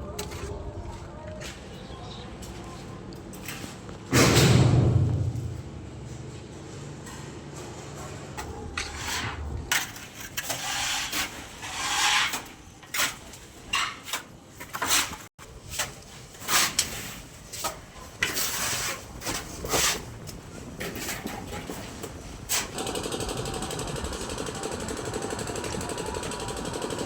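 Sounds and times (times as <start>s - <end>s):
rasping scraping on hard surface: 8.8s - 12.5s.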